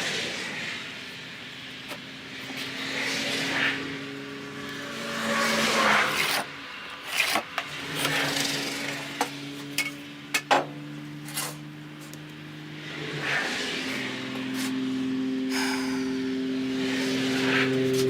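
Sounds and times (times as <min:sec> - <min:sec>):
engine running steadily: 0:07.7 - 0:18.0.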